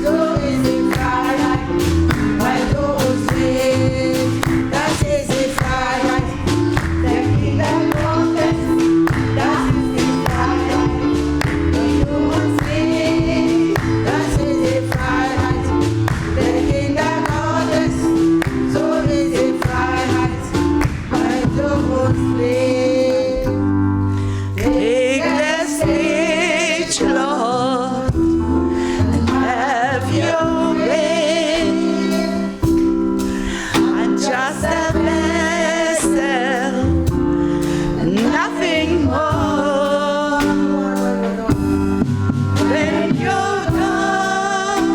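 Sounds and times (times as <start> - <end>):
drum beat: 0.0 - 22.5, 41.5 - 44.9
bass line: 0.0 - 44.9
gospel choir singing: 0.0 - 44.9
keyboard chords: 0.0 - 44.9.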